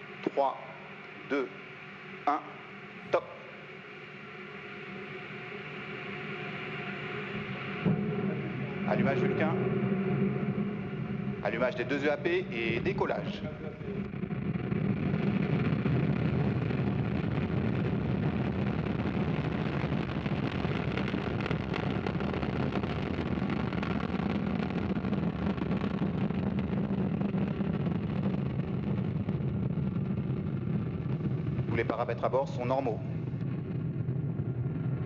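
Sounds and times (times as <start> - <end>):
rocket engines roaring: 0.0 - 35.0.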